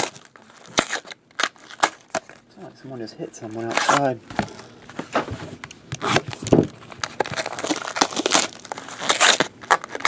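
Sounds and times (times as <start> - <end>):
card pack wrappers crinkling: 0.0 - 2.4, 6.0 - 10.0.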